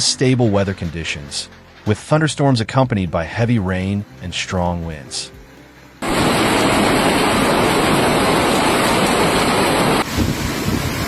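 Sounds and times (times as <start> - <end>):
wind: 5.5 - 11.0
heavy rain downpour: 6.0 - 11.0.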